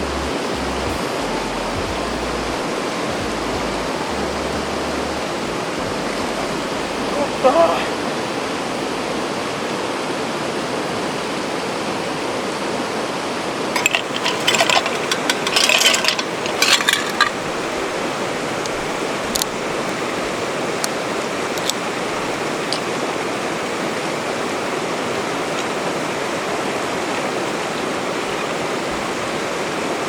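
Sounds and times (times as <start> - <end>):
river flowing: 0.0 - 30.0
light clinks and clicks: 13.8 - 17.4.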